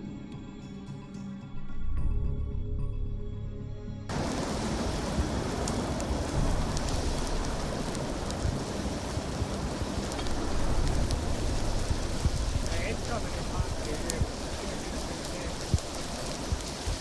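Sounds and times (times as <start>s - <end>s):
background music: 0.0s - 6.4s
fire crackles: 4.1s - 17.0s
wildfire roaring: 4.1s - 17.0s.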